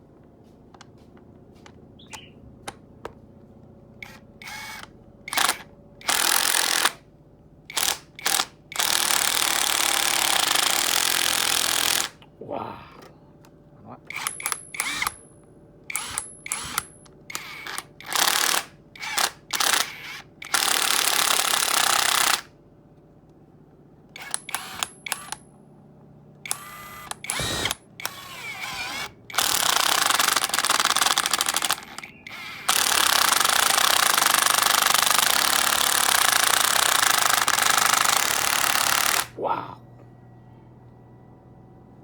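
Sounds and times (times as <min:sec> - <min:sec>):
cordless drill running: 0:04.0 - 0:07.0, 0:07.7 - 0:12.1, 0:14.1 - 0:15.2, 0:15.9 - 0:22.4, 0:24.2 - 0:25.4, 0:26.4 - 0:39.3.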